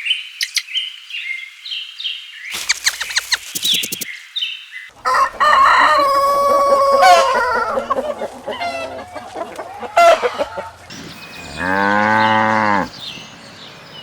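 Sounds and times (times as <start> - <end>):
rooster clucking calls: 5.0 - 10.9
rooster crowing: 5.0 - 10.9.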